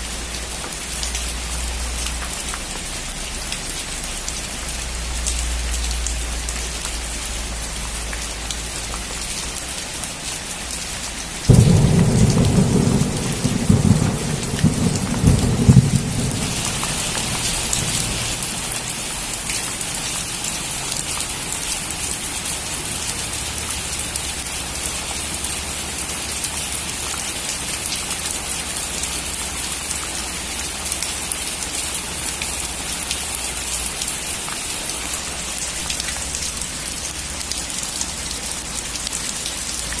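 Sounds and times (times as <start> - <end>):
steady rain: 0.0 - 40.0
thunder crackling and rumbling: 11.4 - 19.5.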